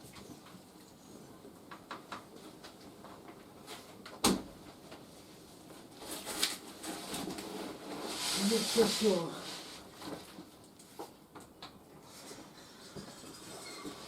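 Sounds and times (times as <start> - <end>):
scraping and rustling: 5.8 - 10.5.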